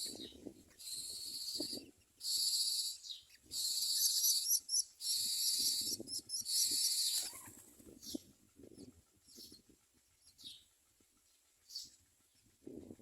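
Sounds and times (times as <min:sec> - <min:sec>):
nestlings hissing begging calls: 0:03.6 - 0:07.4.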